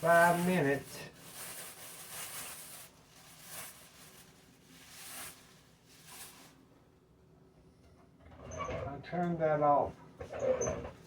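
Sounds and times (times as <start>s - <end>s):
faint rustling and handling: 0.0s - 6.8s.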